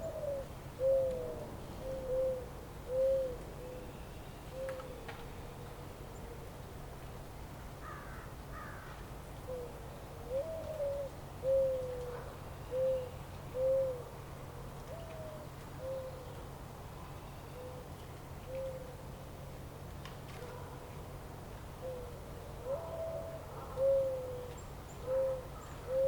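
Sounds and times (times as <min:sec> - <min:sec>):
bird hooting softly: 0:00.0 - 0:06.4, 0:09.4 - 0:14.1, 0:14.9 - 0:16.4, 0:17.2 - 0:19.0, 0:21.8 - 0:26.0.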